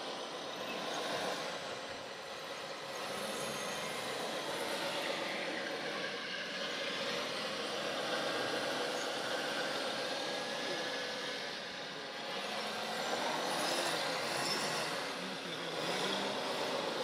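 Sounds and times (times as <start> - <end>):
model trucks mechanical hum: 0.0 - 17.0.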